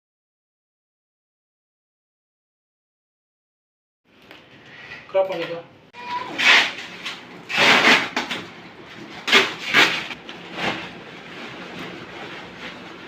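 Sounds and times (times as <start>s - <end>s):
cardboard boxes rustling and scraping: 6.1s - 13.0s.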